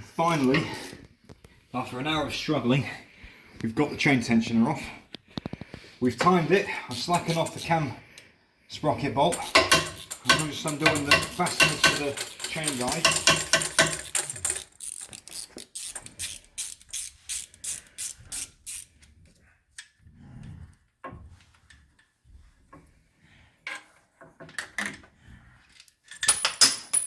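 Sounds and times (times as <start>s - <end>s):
tool clicks and knocks: 9.3s - 16.1s
ratchet wrench clicking: 9.3s - 18.9s.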